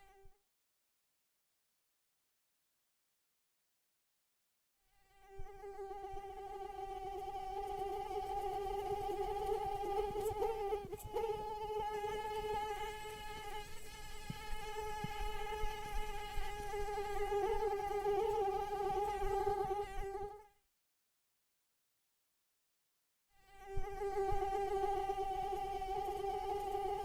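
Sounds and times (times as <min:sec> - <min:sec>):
mosquito wingbeat whine: 0:05.1 - 0:20.4, 0:23.4 - 0:27.0.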